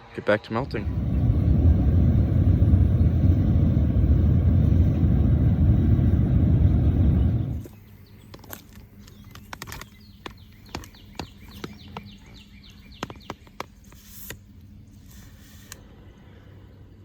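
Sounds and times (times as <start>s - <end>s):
steady low hum: 0.0s - 8.3s
bird chirping: 0.4s - 13.9s.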